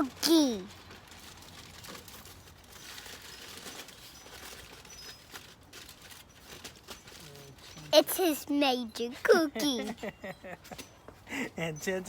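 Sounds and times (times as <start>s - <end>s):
rustling: 0.0s - 9.3s.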